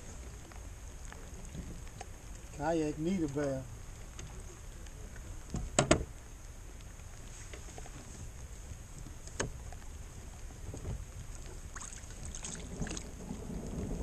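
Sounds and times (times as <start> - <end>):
water against kayak: 0.0 - 14.0
wind buffeting microphone: 7.9 - 14.0.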